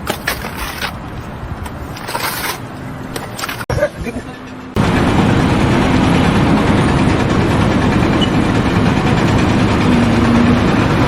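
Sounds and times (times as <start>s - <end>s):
heavy engine running: 4.4s - 11.0s.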